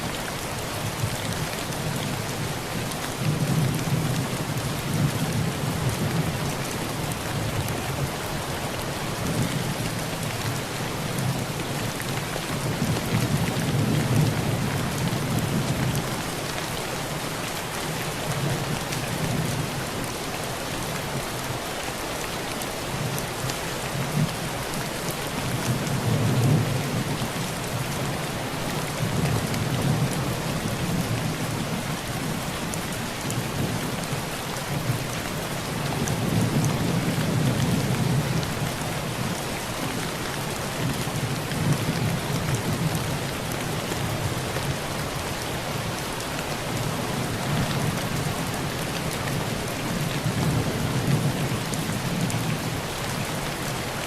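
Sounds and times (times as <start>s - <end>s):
rain drumming on a tin roof: 0.0s - 54.0s.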